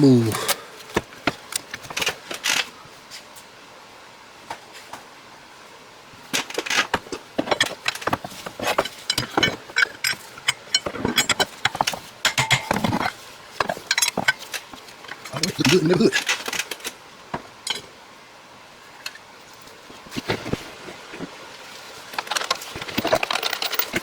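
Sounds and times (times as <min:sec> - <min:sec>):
hand tools clicking and clattering: 0:06.3 - 0:17.9, 0:22.0 - 0:24.0.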